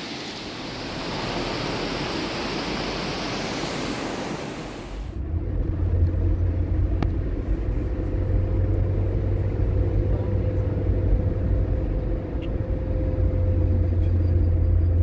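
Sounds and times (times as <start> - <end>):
faint hum: 0.0 - 5.2.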